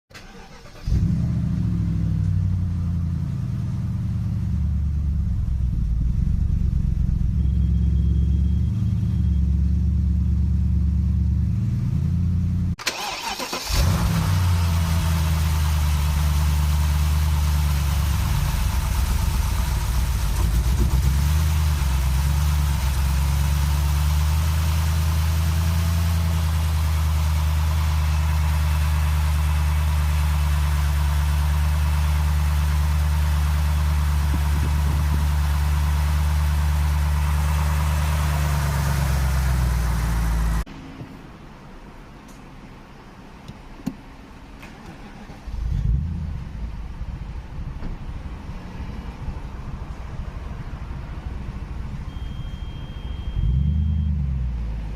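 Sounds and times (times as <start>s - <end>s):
car engine wavering: 0.2s - 40.7s, 51.2s - 54.9s.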